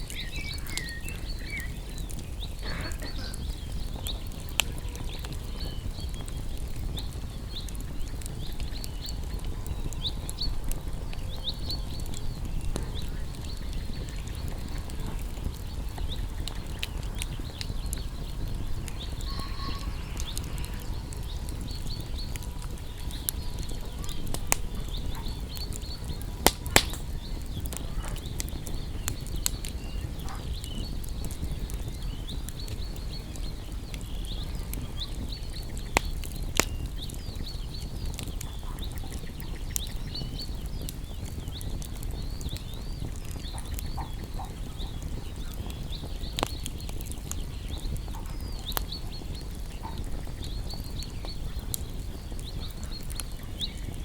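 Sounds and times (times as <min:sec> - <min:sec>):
campfire crackling: 0:00.0 - 0:54.0
loud fire pops: 0:00.0 - 0:54.0
high animal chirps: 0:19.2 - 0:20.8.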